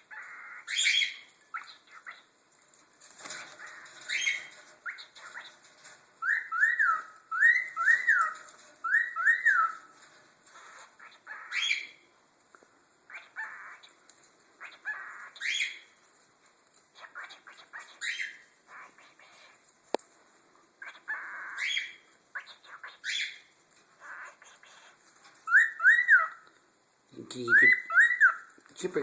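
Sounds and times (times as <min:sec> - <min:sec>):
cockatiels chirping: 0:00.0 - 0:02.3, 0:03.3 - 0:09.9, 0:10.5 - 0:12.0, 0:13.1 - 0:14.0, 0:14.6 - 0:16.0, 0:16.9 - 0:19.6, 0:20.8 - 0:26.4, 0:27.4 - 0:28.5
cockatiels whistling: 0:06.2 - 0:09.8, 0:25.4 - 0:26.4, 0:27.5 - 0:28.5.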